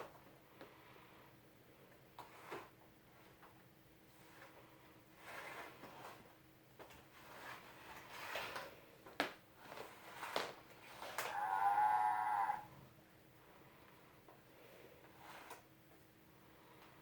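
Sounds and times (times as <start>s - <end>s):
recorded cow moo: 11.2s - 12.8s.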